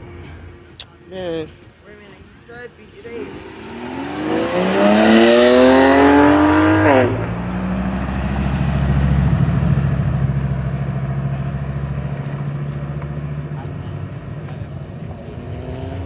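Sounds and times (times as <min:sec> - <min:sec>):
engine revving hard: 0:03.1 - 0:14.6, 0:15.4 - 0:16.0.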